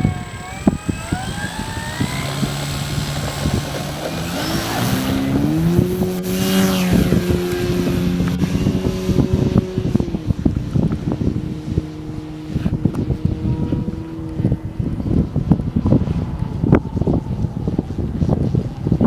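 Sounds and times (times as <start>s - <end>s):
electric motor and propeller whine: 0.0s - 19.0s
wind buffeting microphone: 0.0s - 19.0s.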